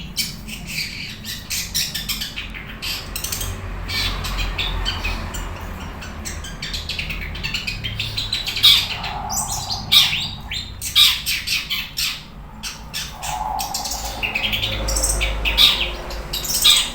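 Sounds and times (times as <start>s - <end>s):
shrike singing: 7.6s - 16.9s.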